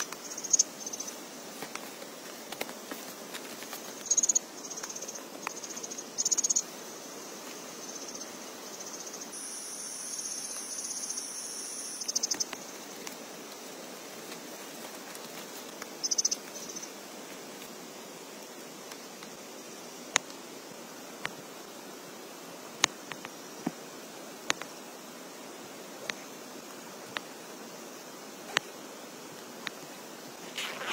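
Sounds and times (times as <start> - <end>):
high insect trill: 0.0 - 18.6, 29.9 - 30.9
faint steady hiss: 0.0 - 30.9
insects chirping: 0.0 - 30.9.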